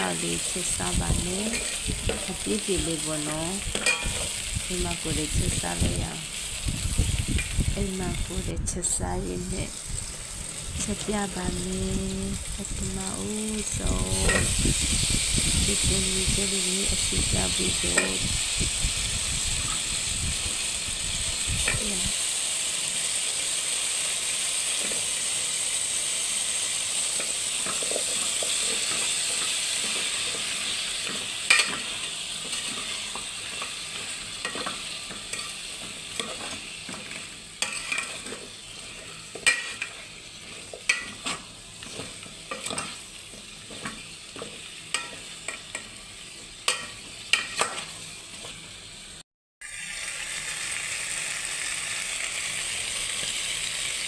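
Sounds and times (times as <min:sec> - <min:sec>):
food sizzling in a pan: 0:00.0 - 0:54.0
utensil scraping a pan: 0:27.2 - 0:45.8.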